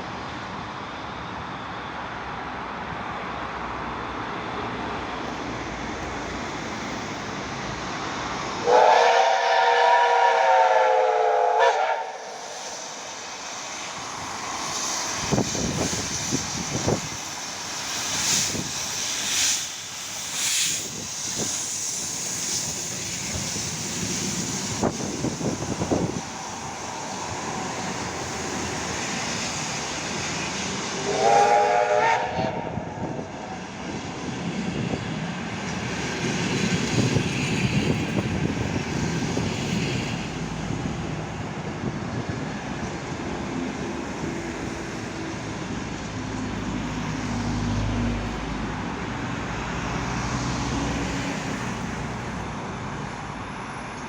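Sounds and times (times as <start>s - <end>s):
train rumble: 0.0s - 54.0s
steam hissing bursts: 5.4s - 52.4s
train whistle blast: 8.6s - 12.4s, 31.0s - 33.0s.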